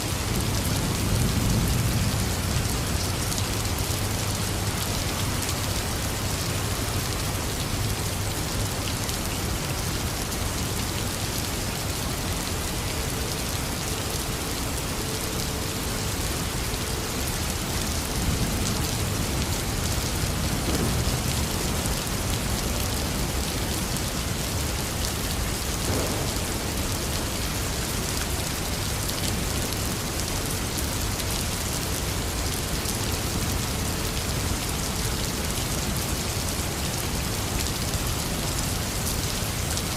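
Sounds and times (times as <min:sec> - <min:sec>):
heavy rain pouring: 0:00.0 - 0:39.9
thunder rumble: 0:19.3 - 0:23.4, 0:25.6 - 0:27.7.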